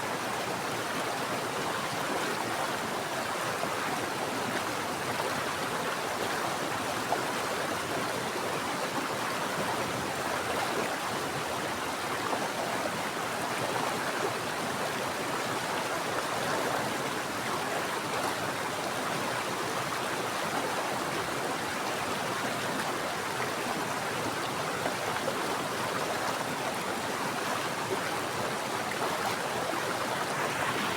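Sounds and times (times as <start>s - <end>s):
stream flowing over rocks: 0.1s - 30.9s.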